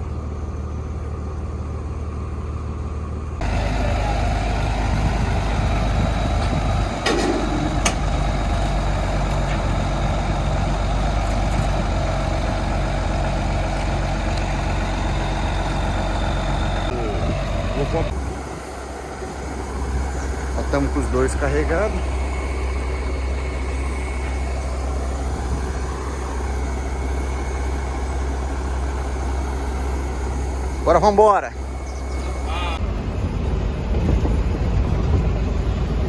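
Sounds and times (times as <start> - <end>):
truck diesel engine running: 0.0 - 36.0.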